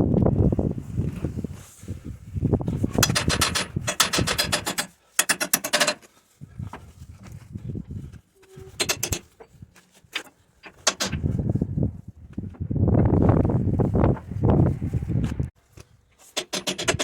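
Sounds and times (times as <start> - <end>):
hand tools clicking and scraping: 2.7 - 6.9, 8.1 - 11.4, 15.7 - 17.0.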